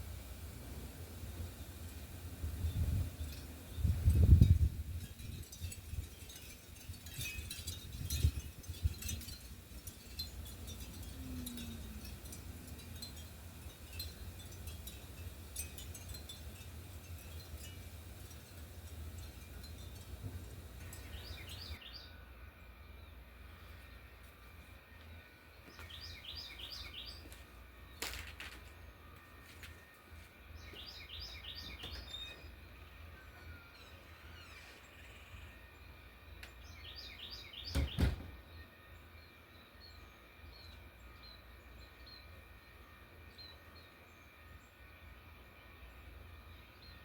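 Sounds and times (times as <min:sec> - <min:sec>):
low steady rumble: 0:00.0 - 0:24.6
songbird singing: 0:00.0 - 0:47.0.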